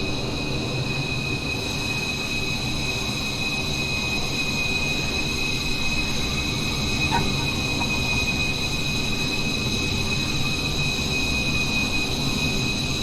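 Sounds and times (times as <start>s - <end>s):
jet engine whine and rumble: 0.0s - 13.0s.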